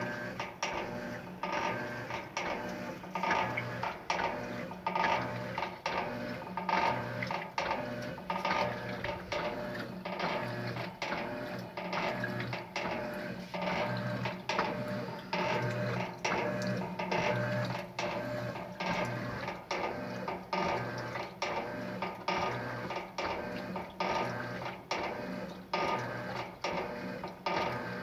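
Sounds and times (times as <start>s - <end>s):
washing machine clunks and swishes: 0.0s - 28.0s
washing machine motor humming: 0.0s - 28.0s.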